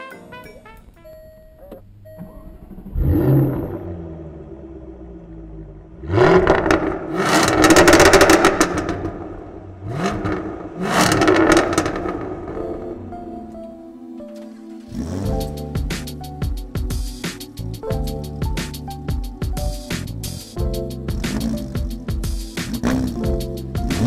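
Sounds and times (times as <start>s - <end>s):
exhaust crackles: 0.7s - 13.2s, 14.8s - 16.3s, 20.1s - 24.0s
car engine revving: 2.4s - 12.8s, 14.9s - 15.9s, 21.1s - 24.0s.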